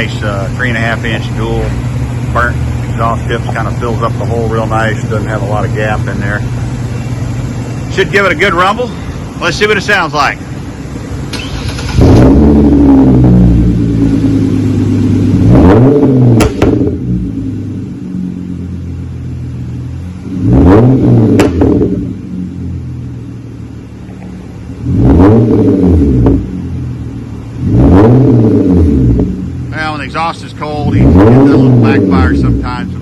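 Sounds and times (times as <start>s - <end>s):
car engine revving: 0.0s - 33.0s
exhaust pops: 2.5s - 7.0s, 11.2s - 17.3s, 20.4s - 22.3s.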